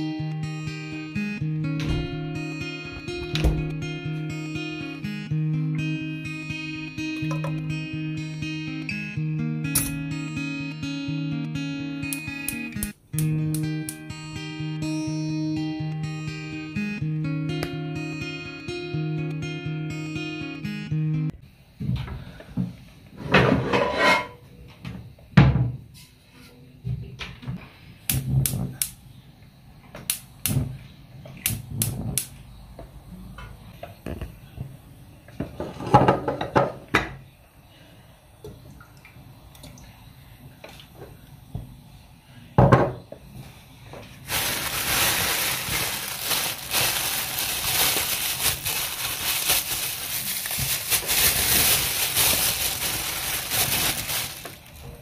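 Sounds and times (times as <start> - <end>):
steady loud hiss: 43.4 - 55.0.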